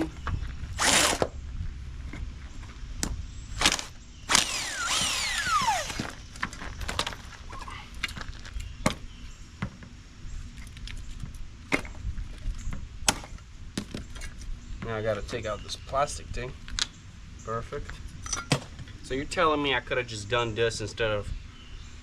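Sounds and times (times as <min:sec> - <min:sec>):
spinning part whining down: 0:03.6 - 0:06.2.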